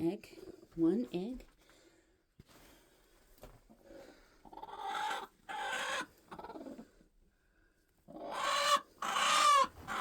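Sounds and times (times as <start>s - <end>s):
hen clucking harshly: 8.1s - 10.0s.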